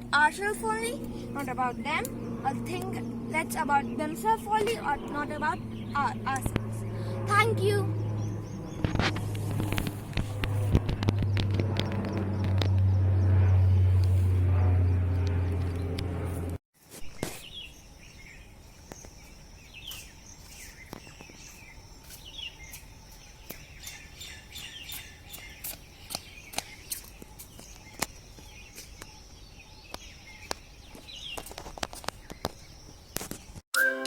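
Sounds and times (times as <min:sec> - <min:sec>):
small birds chirping: 0:00.0 - 0:14.3, 0:17.1 - 0:33.6.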